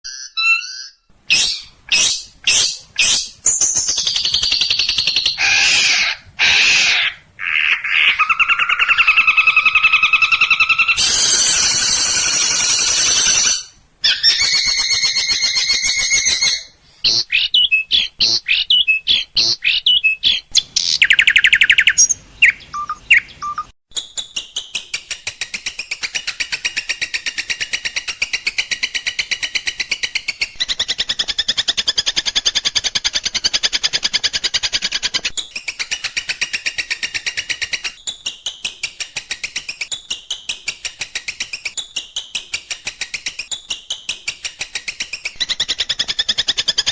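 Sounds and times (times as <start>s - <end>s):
bird trill: 0.0s - 23.7s
rapid repeated sharp bird notes: 0.1s - 23.7s
songbird chattering and calls: 0.1s - 23.7s.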